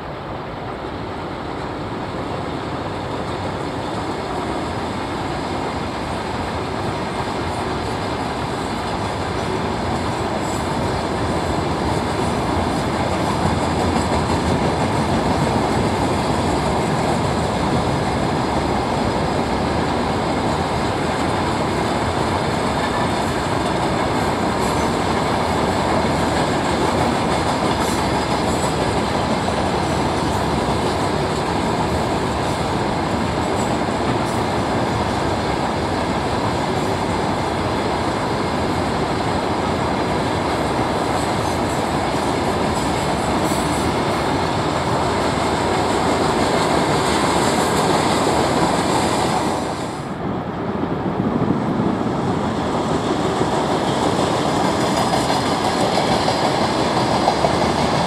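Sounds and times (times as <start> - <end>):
freight train wheels rumbling on rails: 0.0 - 58.0.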